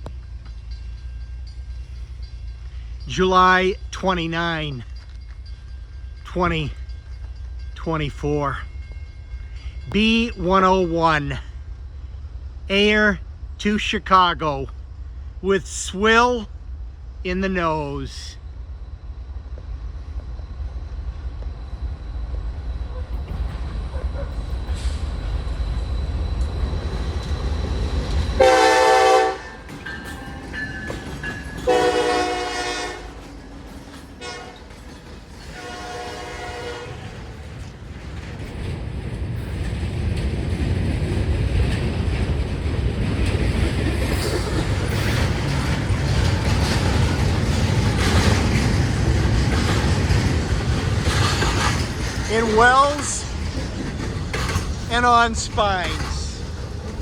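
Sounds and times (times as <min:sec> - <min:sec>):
train low rumble: 0:00.0 - 0:57.0
locomotive air horn blasts: 0:28.4 - 0:29.6, 0:31.7 - 0:33.2, 0:34.2 - 0:34.6, 0:35.5 - 0:37.0
wheels clicking over rail joints: 0:29.2 - 0:57.0.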